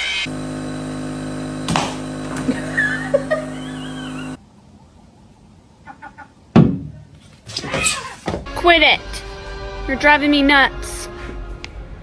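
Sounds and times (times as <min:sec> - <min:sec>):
motor hum: 0:00.1 - 0:04.4.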